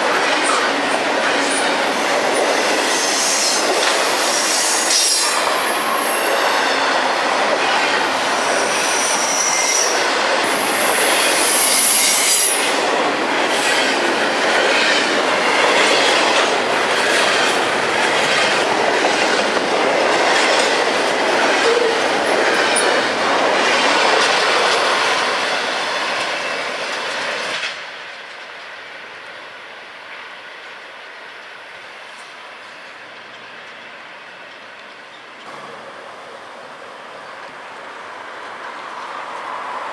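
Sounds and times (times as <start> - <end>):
freight train cars rattling: 0.0 - 27.8
train wheel squeal: 0.1 - 12.9.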